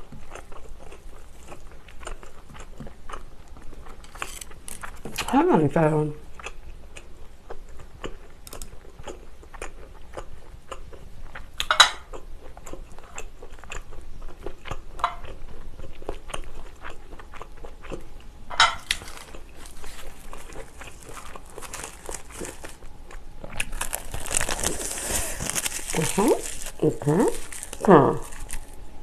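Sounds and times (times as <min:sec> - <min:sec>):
chewing with wet mouth clicks: 0:00.0 - 0:05.3, 0:06.4 - 0:18.3, 0:18.9 - 0:23.8
dried seaweed crinkling: 0:03.9 - 0:05.4, 0:18.8 - 0:28.9
crunchy bite: 0:18.8 - 0:28.8.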